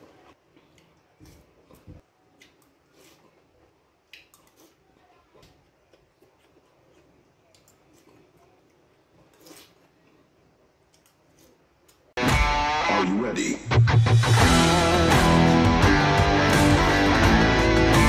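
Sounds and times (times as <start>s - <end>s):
soft chewing: 0.0s - 12.2s.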